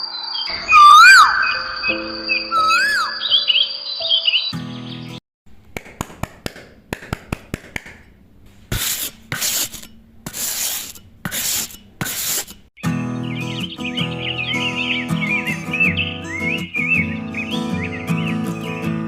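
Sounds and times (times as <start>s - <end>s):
bird calls: 0.0s - 5.2s, 12.8s - 19.0s
rasping hand sanding strokes: 8.7s - 12.7s.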